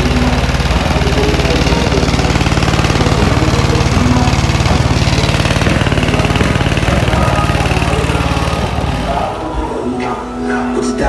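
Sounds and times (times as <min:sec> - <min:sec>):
subwoofer deep bass drone: 0:00.0 - 0:11.0.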